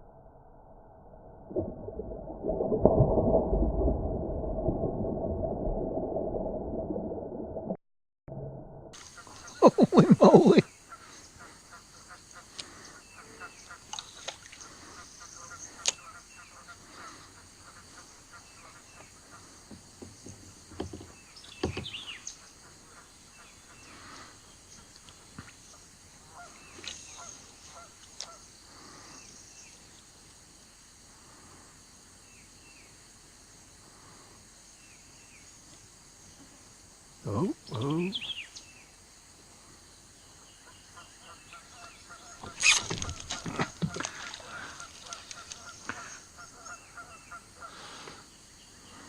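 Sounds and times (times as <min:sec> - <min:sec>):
bird calls: 0:09.0 - 0:29.8, 0:37.3 - 0:38.9, 0:40.3 - 0:49.0
faint sharp clicks: 0:15.8 - 0:16.0, 0:44.0 - 0:46.2.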